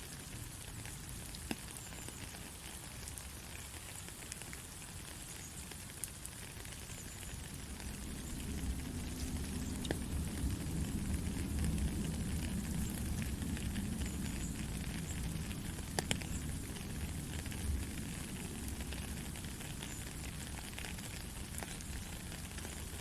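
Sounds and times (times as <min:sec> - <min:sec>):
light ticks of raindrops: 0:00.0 - 0:23.0
rain hissing: 0:00.0 - 0:23.0
steady low rumble: 0:07.5 - 0:19.4.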